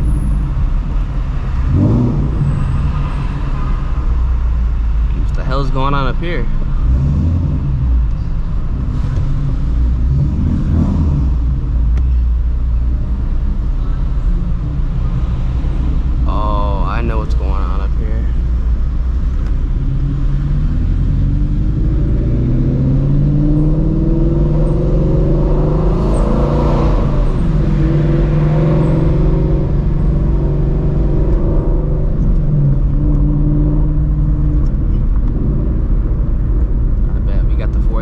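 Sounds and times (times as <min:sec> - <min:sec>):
car engine exhaust note: 0:15.9 - 0:38.0.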